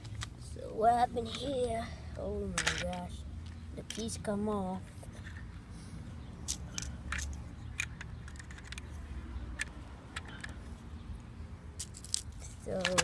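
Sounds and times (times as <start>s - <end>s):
plastic toy bricks clicking: 2.5s - 3.1s, 6.5s - 10.6s, 11.8s - 13.0s.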